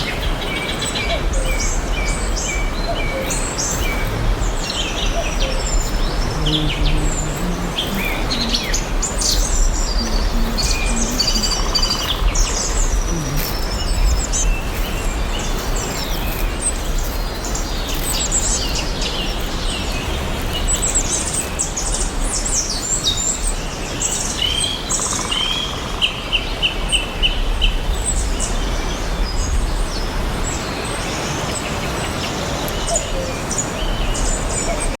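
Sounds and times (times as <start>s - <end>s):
birds chirping and calling: 0.0s - 25.8s
low hum: 3.4s - 17.6s.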